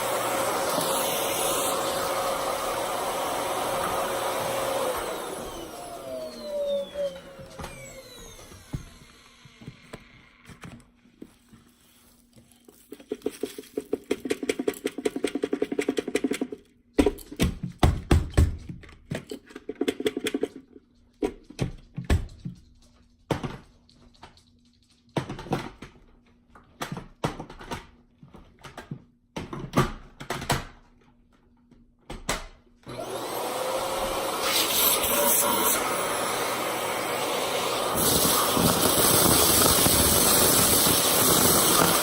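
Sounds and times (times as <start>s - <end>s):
vacuum cleaner motor winding down: 0.0s - 10.5s, 32.9s - 42.0s.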